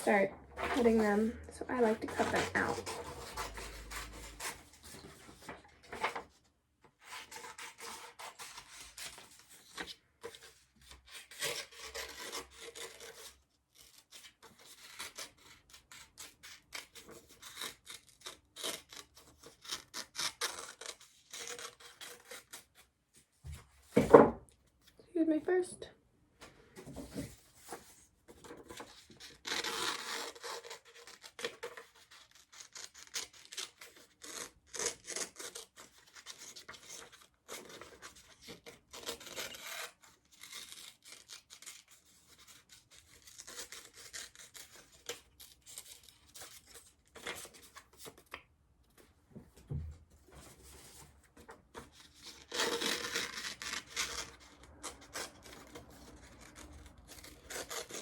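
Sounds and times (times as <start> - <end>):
paper rustling: 1.8 - 13.2, 26.8 - 48.4
scissors snipping paper: 7.1 - 22.8, 28.4 - 48.4, 51.7 - 58.0.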